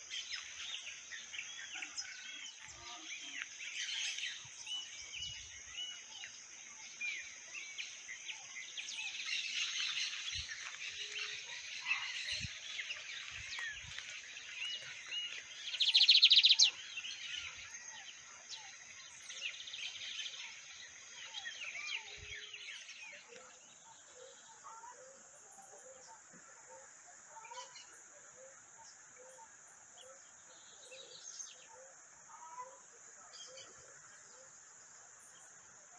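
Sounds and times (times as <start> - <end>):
birds chirping and calling: 0.0 - 26.1.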